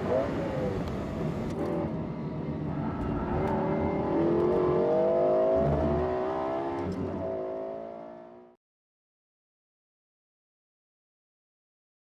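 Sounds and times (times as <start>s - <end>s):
car engine accelerating: 0.0s - 8.6s.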